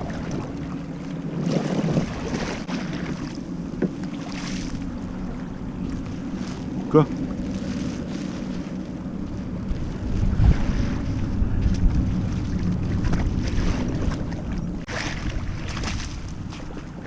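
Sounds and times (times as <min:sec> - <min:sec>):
water lapping against kayak hull: 0:00.0 - 0:17.0
wind buffeting microphone: 0:00.0 - 0:17.0
splashy swishes: 0:11.8 - 0:16.9.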